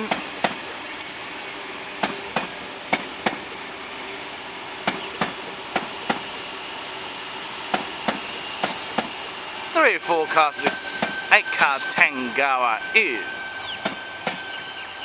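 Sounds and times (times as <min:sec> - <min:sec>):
train rolling rumble: 0:00.0 - 0:15.0
train wheels clacking over rail joints: 0:02.0 - 0:03.5, 0:04.8 - 0:06.3, 0:07.7 - 0:09.2, 0:10.6 - 0:12.1, 0:13.7 - 0:14.6.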